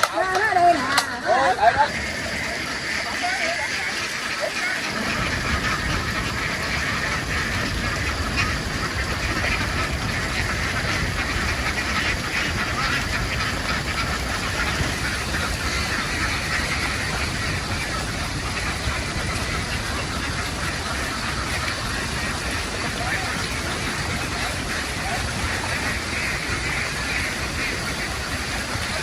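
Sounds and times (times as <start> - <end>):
ducks quacking: 0.0 - 29.0.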